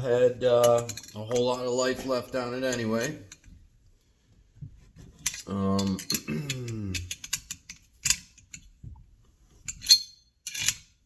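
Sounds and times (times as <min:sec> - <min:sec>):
metal parts and tools clinking: 0:00.6 - 0:03.5, 0:05.2 - 0:08.7, 0:09.6 - 0:11.0
man's wordless vocal sound: 0:05.4 - 0:07.1.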